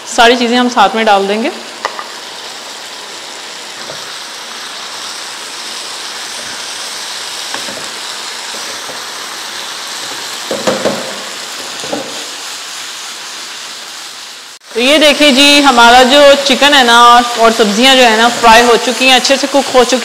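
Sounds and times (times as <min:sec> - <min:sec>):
food sizzling in a frying pan: 0:00.0 - 0:20.0
spatula scraping and knocking pan: 0:07.5 - 0:09.1, 0:10.0 - 0:12.3.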